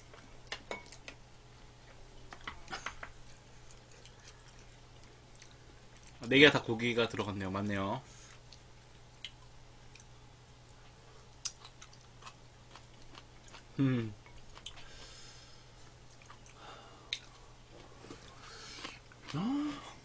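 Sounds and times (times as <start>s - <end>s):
people chewing: 1.8s - 6.3s, 8.2s - 20.0s
person humming: 13.8s - 14.2s, 19.3s - 20.0s.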